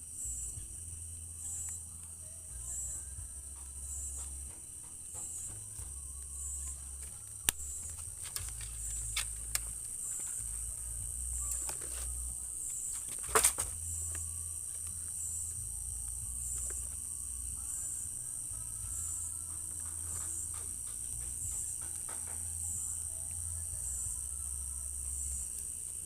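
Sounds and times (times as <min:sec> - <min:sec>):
crickets chirring: 0:00.0 - 0:26.0
sharp snaps: 0:02.8 - 0:23.5.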